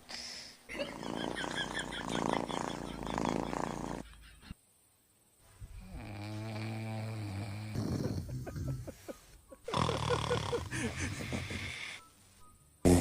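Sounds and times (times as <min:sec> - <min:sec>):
dog snoring: 0:00.8 - 0:04.1, 0:05.8 - 0:08.8, 0:09.7 - 0:12.0.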